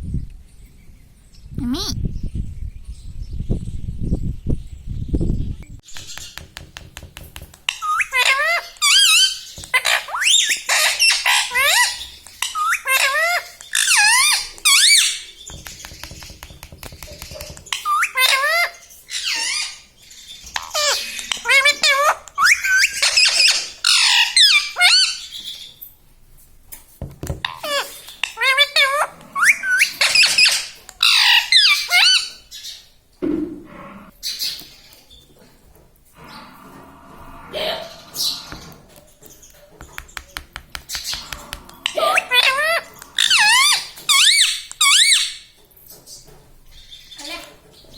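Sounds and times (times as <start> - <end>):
parrot squawking: 7.7 - 15.3, 17.7 - 19.9, 20.6 - 25.3, 27.5 - 32.7, 40.9 - 45.5
parakeet squeaky calls: 7.7 - 15.6, 17.7 - 25.7, 27.5 - 32.8, 40.9 - 45.5.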